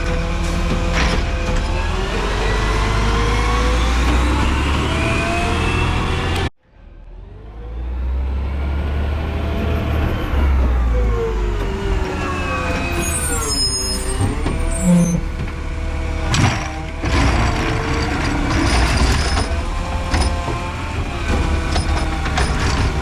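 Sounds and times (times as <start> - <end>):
garbage truck engine running: 14.2 - 23.0.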